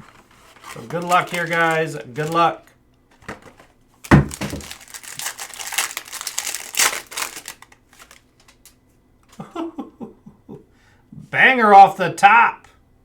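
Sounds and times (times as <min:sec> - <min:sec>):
plastic wrapping tearing and crumpling: 0:00.0 - 0:02.6, 0:04.0 - 0:08.8.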